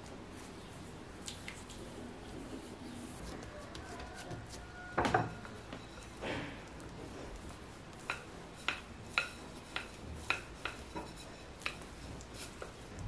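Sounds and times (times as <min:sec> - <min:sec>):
utensil scraping dish: 0:03.1 - 0:12.8.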